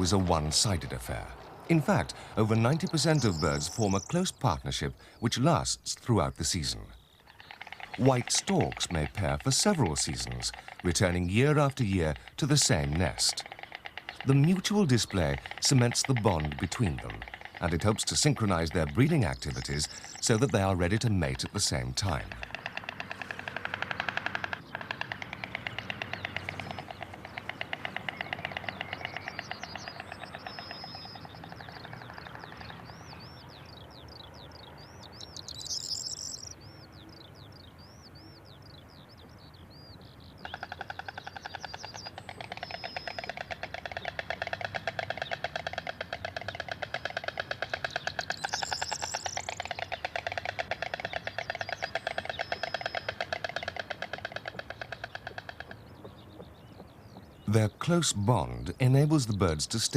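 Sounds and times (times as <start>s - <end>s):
storks clattering bills: 6.2s - 30.8s, 40.5s - 55.8s
high thin bird chirps: 12.2s - 36.9s, 40.4s - 45.9s, 46.5s - 57.5s.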